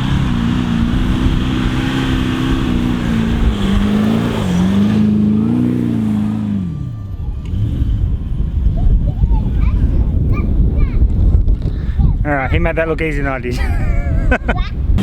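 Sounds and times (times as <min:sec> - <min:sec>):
engine revving hard: 0:00.0 - 0:08.4.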